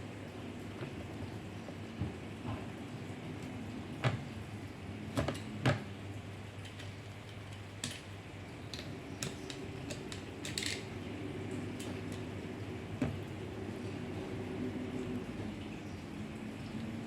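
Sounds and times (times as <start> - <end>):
steady low hum: 0.0 - 17.0
plastic parts clicking: 6.6 - 8.1, 8.7 - 10.9.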